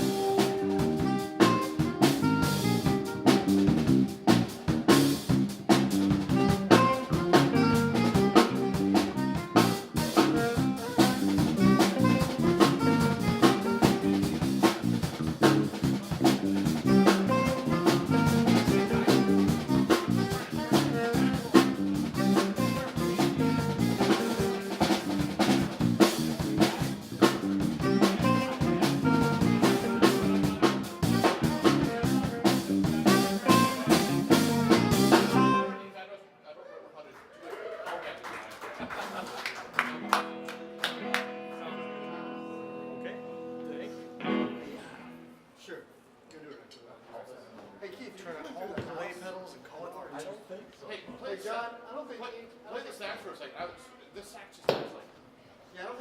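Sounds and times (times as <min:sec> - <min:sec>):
drum kit beat: 0:00.0 - 0:35.8
live jazz band playing: 0:00.0 - 0:36.0, 0:39.8 - 0:45.3.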